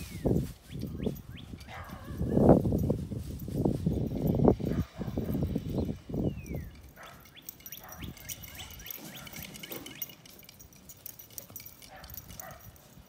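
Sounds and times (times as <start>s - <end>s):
small birds chirping: 0.0s - 2.6s, 4.0s - 10.4s.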